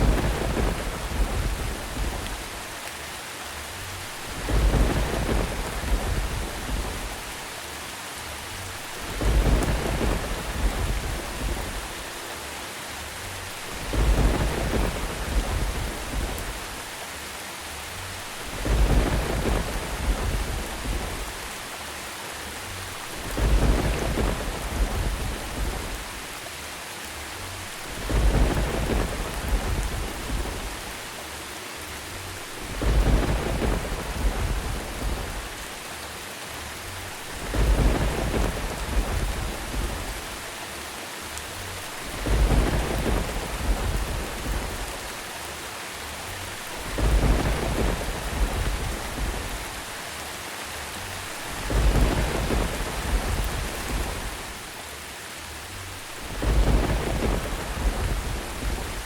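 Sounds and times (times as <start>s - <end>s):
rolling thunder: 0.0s - 2.7s, 4.0s - 7.4s, 8.7s - 12.2s, 13.5s - 16.9s, 18.2s - 21.6s, 22.9s - 26.4s, 27.7s - 31.1s, 32.4s - 35.8s, 37.1s - 40.6s, 41.9s - 45.3s, 46.5s - 50.0s, 51.1s - 54.7s, 56.0s - 59.0s
steady rain hiss: 0.0s - 59.0s.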